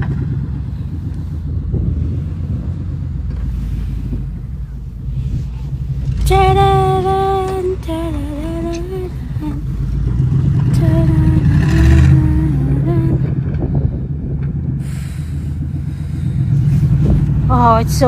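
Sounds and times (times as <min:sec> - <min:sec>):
low engine rumble: 0:00.0 - 0:18.0
person humming: 0:10.8 - 0:13.3.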